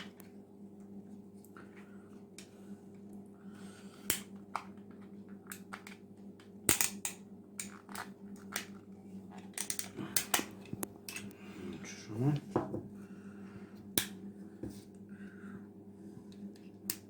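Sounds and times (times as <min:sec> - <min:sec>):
faint steady hum: 0:00.0 - 0:17.0
plastic clips clicking and cracking: 0:06.7 - 0:08.8, 0:09.4 - 0:11.3.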